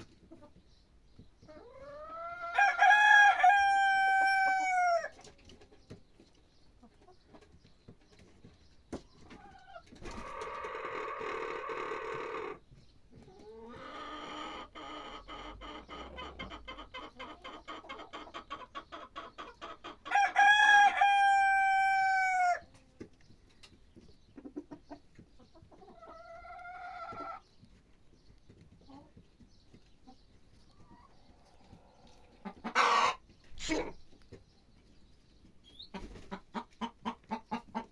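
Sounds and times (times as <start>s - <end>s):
rooster crowing: 2.5s - 5.1s, 20.1s - 22.6s.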